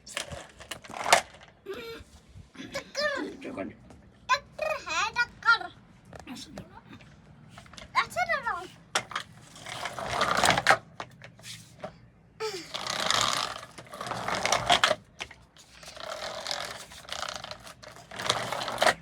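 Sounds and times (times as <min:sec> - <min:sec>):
child making engine noises: 0:01.6 - 0:03.4, 0:04.3 - 0:07.0, 0:07.9 - 0:08.8, 0:12.4 - 0:13.5.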